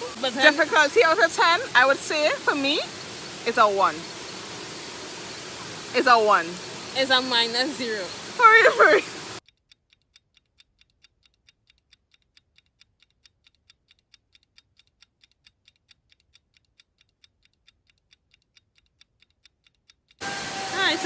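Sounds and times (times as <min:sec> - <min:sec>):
clock ticking: 0:06.0 - 0:20.2.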